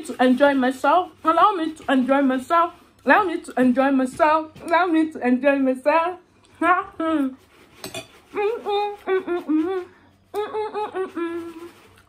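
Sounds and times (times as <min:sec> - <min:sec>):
woman humming: 0:08.3 - 0:11.9.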